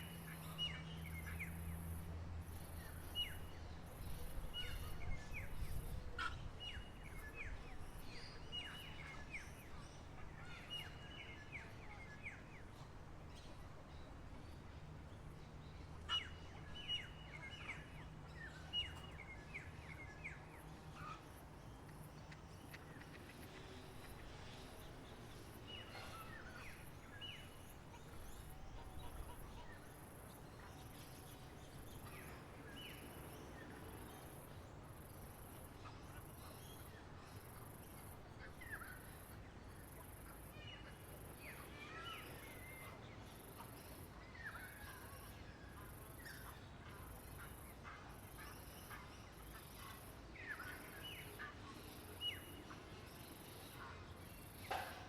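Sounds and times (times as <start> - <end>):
songbirds chirping: 0.0 - 39.1
faint outdoor hiss: 0.0 - 55.0.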